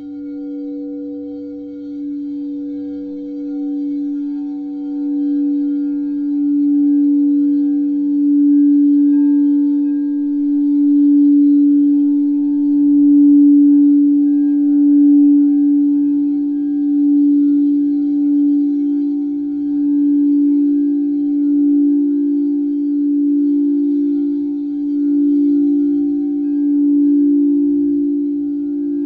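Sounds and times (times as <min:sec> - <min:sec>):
singing bowl low tone: 0:00.0 - 0:29.0.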